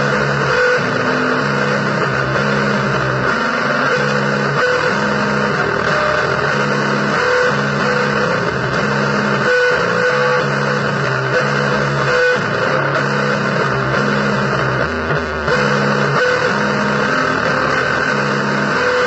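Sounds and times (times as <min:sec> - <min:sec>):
harsh distorted noise music: 0:00.0 - 0:19.0.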